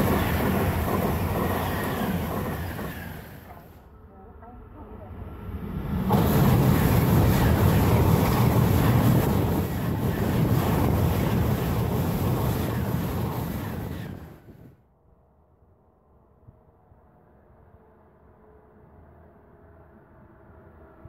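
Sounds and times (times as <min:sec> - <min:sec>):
high-speed train passing: 0:00.0 - 0:14.8
wind on the microphone: 0:06.1 - 0:14.8.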